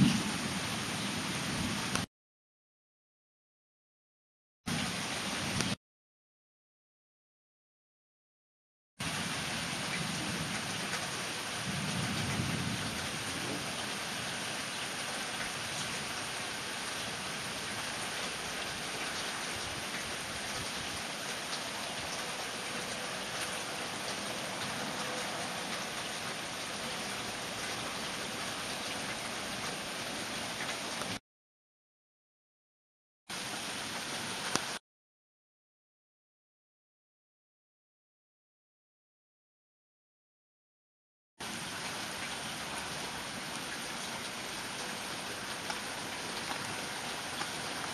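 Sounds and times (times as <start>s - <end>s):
heavy rain: 0.0s - 2.1s, 4.7s - 5.8s, 9.0s - 31.2s, 33.3s - 34.8s, 41.4s - 47.9s
thunder rumbling: 11.6s - 14.1s.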